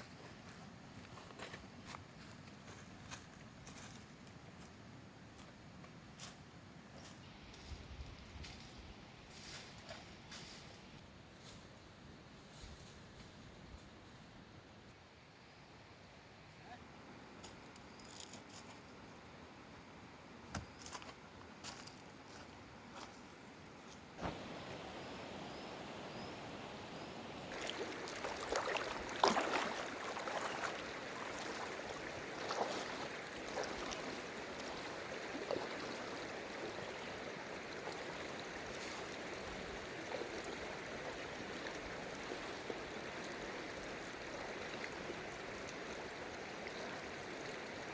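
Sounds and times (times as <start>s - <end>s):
stream water rushing: 24.2s - 47.9s
water splashes: 27.4s - 47.9s.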